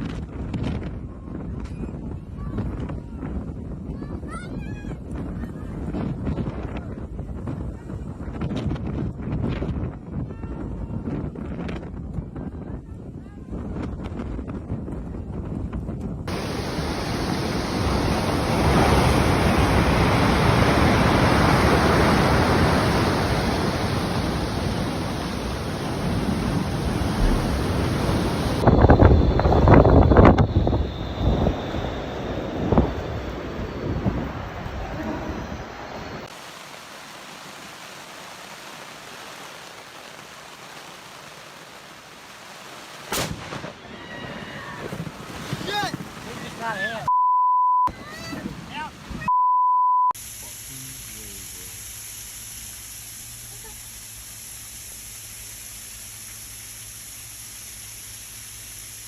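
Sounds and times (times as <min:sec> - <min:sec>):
lightning crack with rumbling: 0:16.3 - 0:35.6, 0:43.1 - 0:46.8
loud steady rushing noise: 0:16.3 - 0:40.6
heavy rain hissing: 0:16.3 - 0:43.7, 0:50.2 - 0:59.0.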